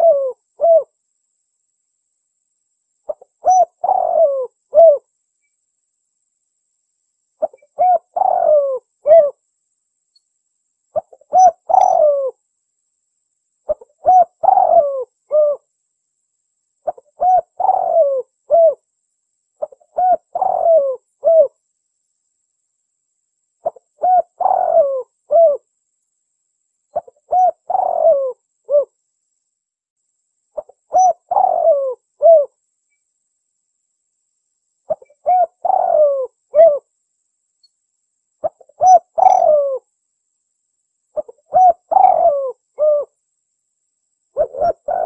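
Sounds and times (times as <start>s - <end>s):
dove cooing: 0.0s - 0.9s, 3.1s - 5.0s, 7.4s - 9.4s, 11.0s - 12.4s, 13.7s - 15.6s, 16.8s - 18.8s, 19.6s - 21.6s, 23.6s - 25.7s, 27.0s - 29.0s, 30.6s - 32.5s, 34.9s - 36.9s, 38.4s - 39.8s, 41.2s - 43.2s, 44.4s - 45.0s.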